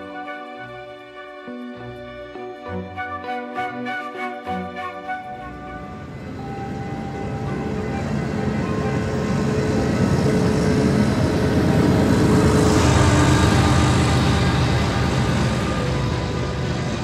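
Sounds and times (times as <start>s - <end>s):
freight train rumbling: 0.0s - 17.0s
faint steady tones: 5.1s - 17.0s.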